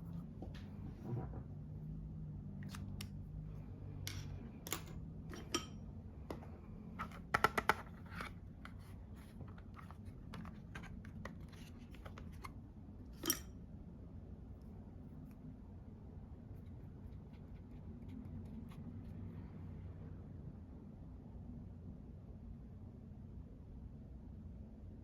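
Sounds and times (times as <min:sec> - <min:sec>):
low steady hum: 0:00.0 - 0:25.0
makeup items clicking and tapping: 0:06.3 - 0:08.8.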